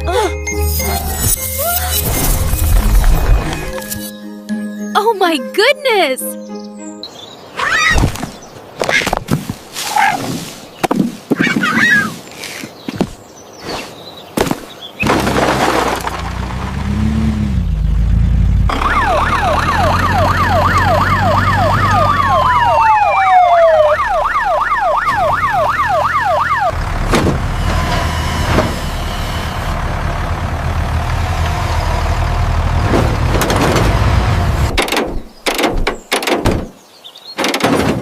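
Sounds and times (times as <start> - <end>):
low engine rumble: 16.0 - 34.8
yelping emergency siren: 18.7 - 26.8.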